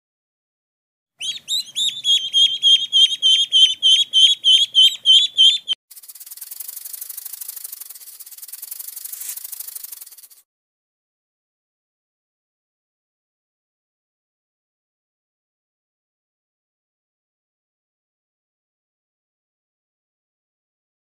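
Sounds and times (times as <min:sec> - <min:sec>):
high bird-like chirps: 0:01.2 - 0:10.4.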